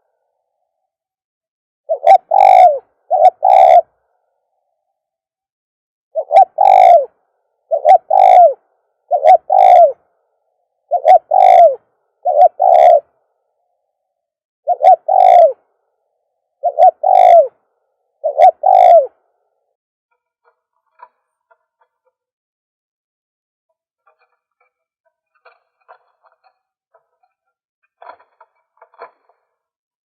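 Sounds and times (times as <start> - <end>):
dove cooing: 1.9 - 3.9, 6.2 - 10.0, 10.9 - 13.1, 14.7 - 15.6, 16.6 - 19.2.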